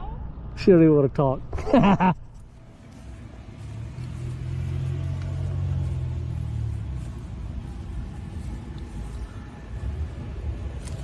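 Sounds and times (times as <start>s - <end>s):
vehicle engine running: 2.4s - 11.0s.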